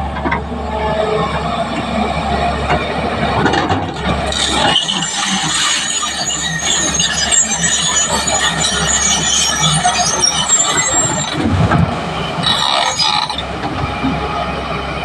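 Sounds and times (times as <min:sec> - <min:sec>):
heavy machinery engine drone: 0:00.0 - 0:15.0
high-pitched metallic tones: 0:04.3 - 0:11.4.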